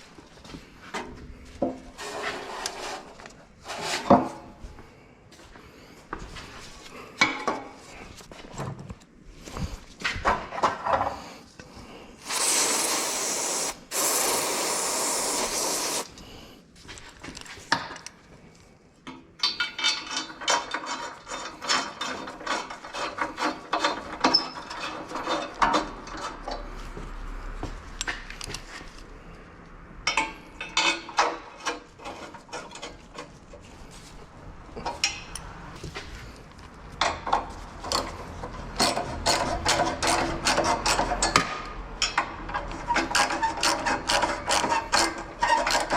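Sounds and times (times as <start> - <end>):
aerosol spray hissing: 12.2 - 16.1.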